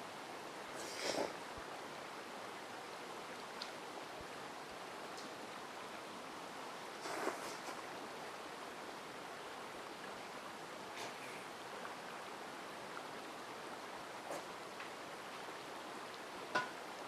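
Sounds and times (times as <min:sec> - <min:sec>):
mountain stream flowing: 0:00.0 - 0:17.0
short rustle: 0:07.0 - 0:07.8.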